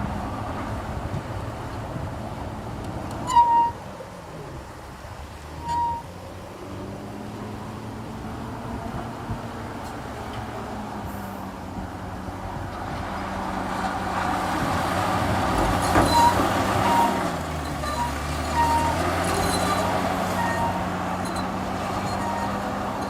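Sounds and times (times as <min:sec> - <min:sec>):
diesel machinery running: 0:00.0 - 0:23.0
short high squeaks: 0:05.6 - 0:06.2, 0:15.7 - 0:23.0.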